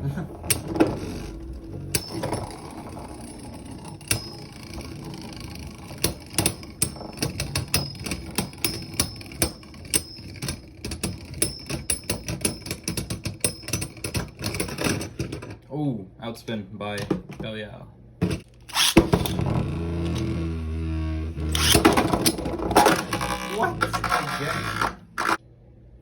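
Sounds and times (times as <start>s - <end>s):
spinning tops whirring: 0.3s - 12.0s, 18.5s - 25.4s.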